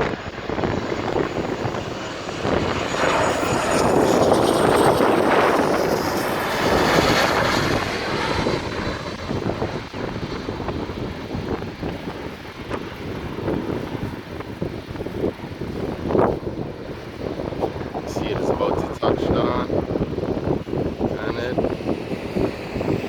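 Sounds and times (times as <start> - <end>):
jet engine roar: 0.0 - 23.0.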